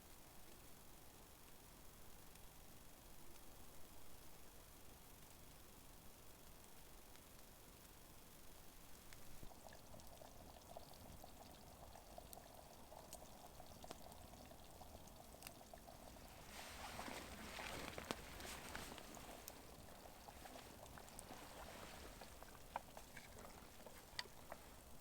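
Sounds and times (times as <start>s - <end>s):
liquid being poured: 9.1s - 25.0s.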